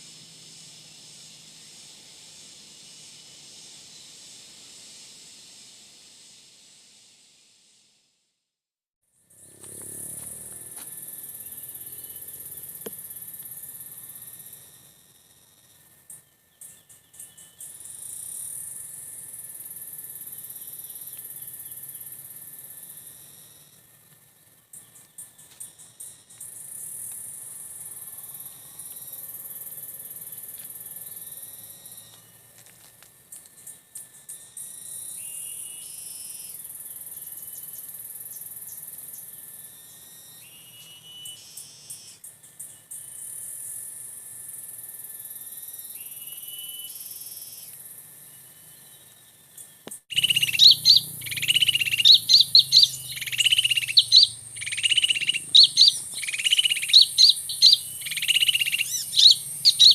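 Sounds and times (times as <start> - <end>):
insects buzzing: 0.0 - 8.0, 9.2 - 59.9
small birds chirping: 49.6 - 59.9.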